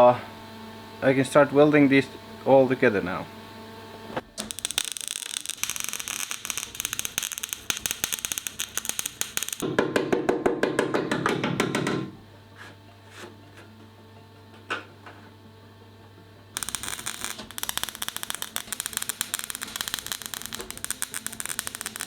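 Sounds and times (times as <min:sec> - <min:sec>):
welding arc crackling: 0:04.3 - 0:09.6, 0:16.6 - 0:22.0
music: 0:09.6 - 0:22.0.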